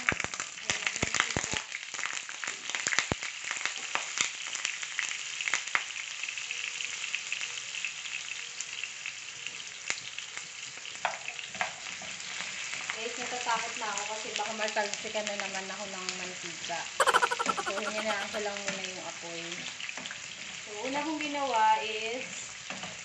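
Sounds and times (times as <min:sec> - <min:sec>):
vegetables frying in oil: 0:00.0 - 0:14.4.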